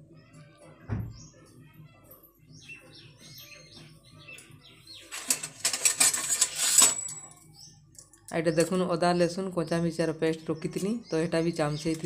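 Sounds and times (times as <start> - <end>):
faint birds chirping: 0.1 - 5.8, 7.1 - 12.0
loud rustling and clattering: 5.0 - 7.3.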